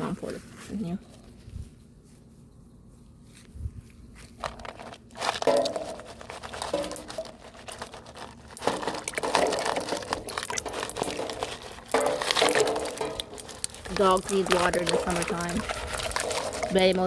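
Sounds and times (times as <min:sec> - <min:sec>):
ice cubes poured into bowl: 0:04.6 - 0:17.0.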